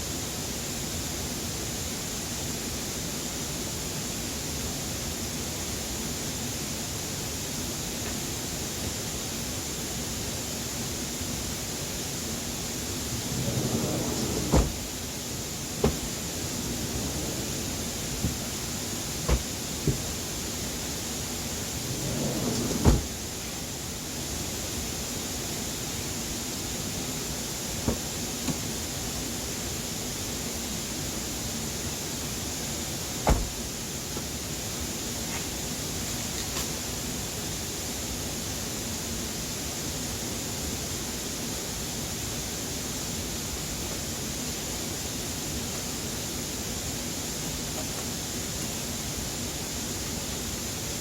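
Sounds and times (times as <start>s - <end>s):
steady rushing noise: 12.1s - 35.0s.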